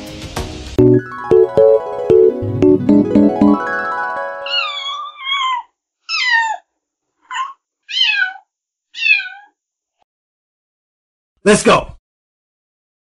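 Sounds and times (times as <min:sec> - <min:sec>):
keyboard tune: 0:00.8 - 0:05.1
cat meowing: 0:04.4 - 0:06.7, 0:07.3 - 0:09.6.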